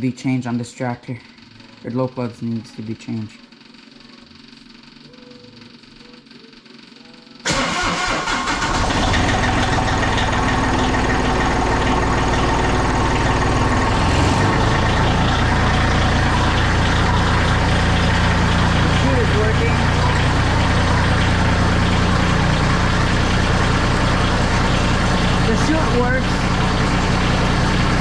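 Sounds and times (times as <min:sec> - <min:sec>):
diesel tractor engine running: 0:07.5 - 0:28.0.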